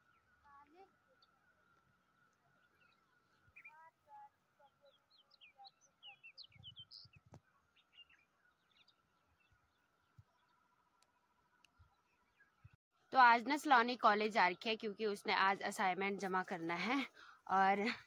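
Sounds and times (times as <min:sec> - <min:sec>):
small birds chirping: 0:00.0 - 0:12.8.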